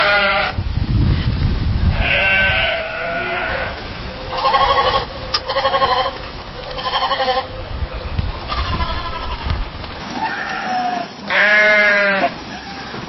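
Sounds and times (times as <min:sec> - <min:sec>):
sheep bleating: 0:00.0 - 0:00.6, 0:02.0 - 0:07.5, 0:08.5 - 0:09.5, 0:10.2 - 0:13.0.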